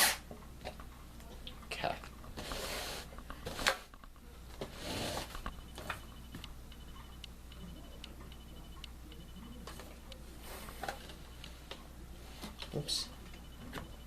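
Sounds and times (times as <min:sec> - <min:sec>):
low steady hum: 0:00.2 - 0:14.0
faint fast ticking: 0:05.6 - 0:10.3.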